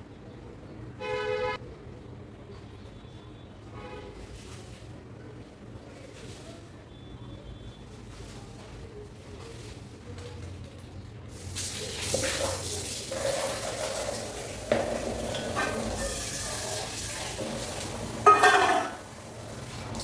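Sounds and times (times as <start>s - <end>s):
tap water splashing on hair: 11.4s - 19.0s.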